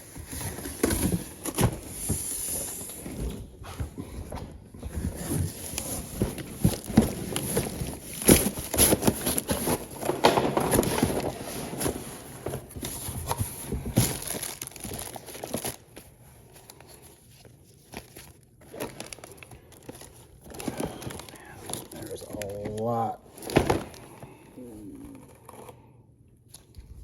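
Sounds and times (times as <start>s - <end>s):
plastic packaging rustling: 0.0s - 24.4s
boxes knocking: 4.8s - 14.4s.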